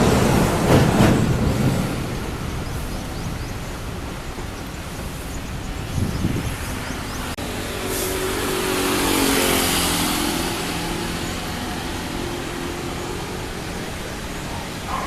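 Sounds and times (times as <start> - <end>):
vehicle passing by: 6.8 - 14.9.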